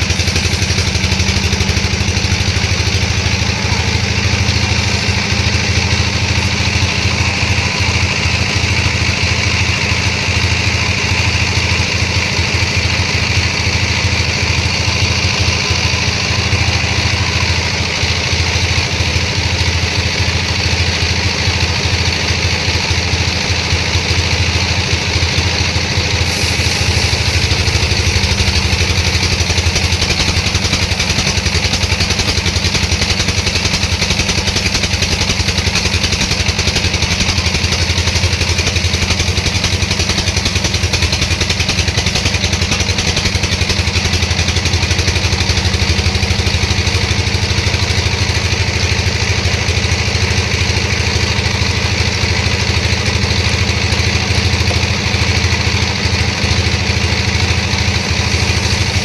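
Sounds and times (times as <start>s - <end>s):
sawmill machinery drone: 0.0s - 59.0s.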